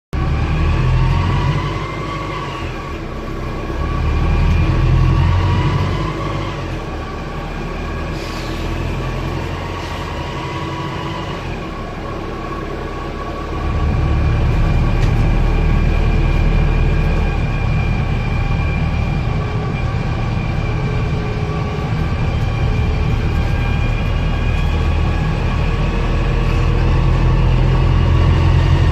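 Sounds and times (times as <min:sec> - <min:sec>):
diesel bus engine running: 0:00.1 - 0:28.9
loud grinding noise: 0:00.2 - 0:28.9
whine rising and falling: 0:12.4 - 0:28.9.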